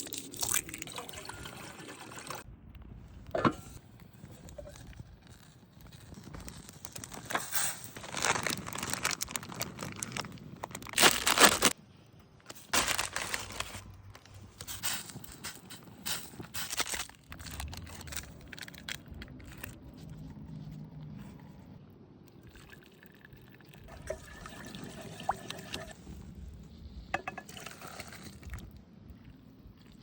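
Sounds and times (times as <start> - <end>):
liquid pouring into pot: 0.1 - 2.4, 22.4 - 26.0.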